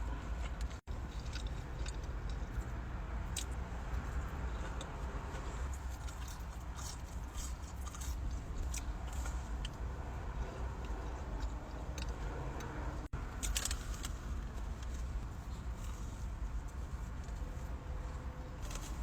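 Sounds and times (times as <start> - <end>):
chewing crispy food crunches: 0.5 - 9.8.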